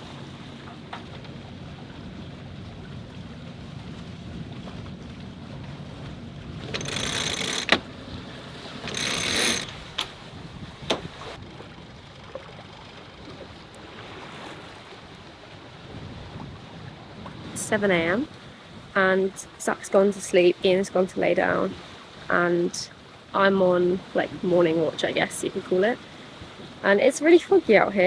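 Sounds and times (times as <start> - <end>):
boat and wind noise: 0.0 - 28.0
mechanical gear rasping: 6.6 - 7.9, 8.8 - 10.1
sharp clicks: 6.7 - 7.8, 8.9 - 10.1.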